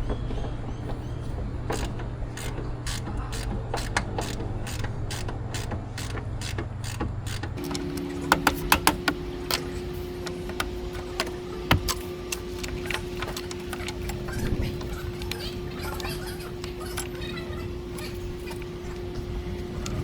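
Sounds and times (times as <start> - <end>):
mechanical hum: 0.0 - 20.0
metallic clicks and knocks: 5.1 - 17.2.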